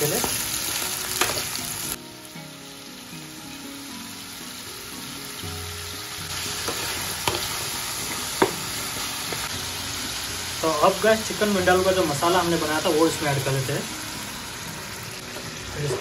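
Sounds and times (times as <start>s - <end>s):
chicken sizzling in hot oil: 0.0s - 16.0s
utensil knocking against pan: 8.4s - 8.6s.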